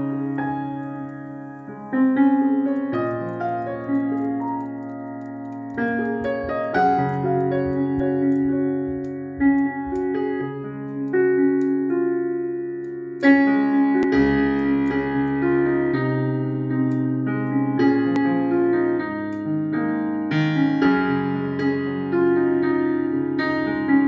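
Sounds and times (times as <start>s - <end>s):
soft piano chords: 0.0s - 24.0s.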